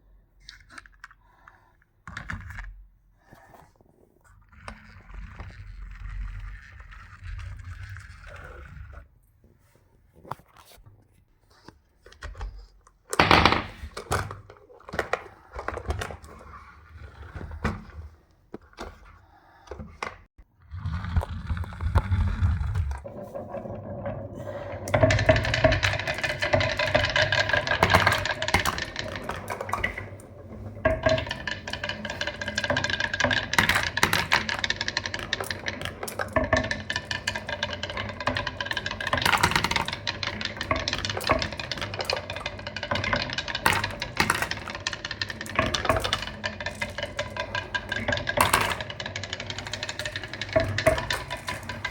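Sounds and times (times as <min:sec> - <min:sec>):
marbles rattling down a marble run: 0:04.6 - 0:09.0, 0:21.6 - 0:51.9.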